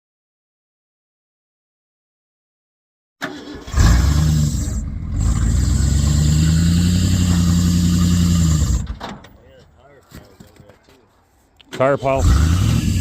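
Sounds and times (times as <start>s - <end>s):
pickup engine running under load: 3.2s - 9.2s.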